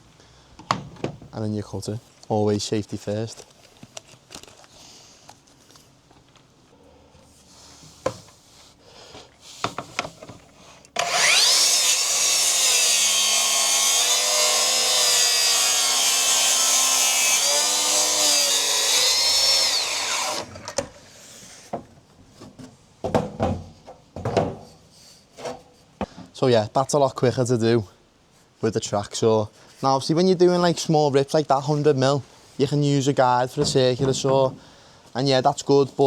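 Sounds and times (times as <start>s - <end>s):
circular saw cutting wood: 11.0s - 20.7s.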